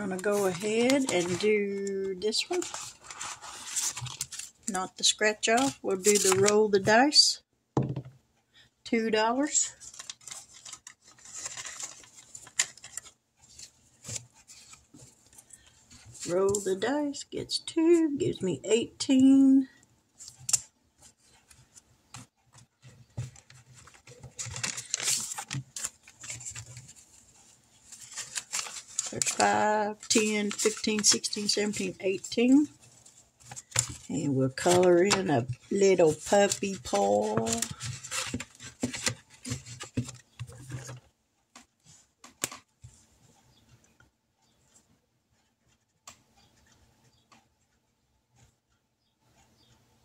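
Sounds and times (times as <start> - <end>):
paper bills rustling: 0.0 - 6.8, 9.7 - 16.8, 23.4 - 41.0.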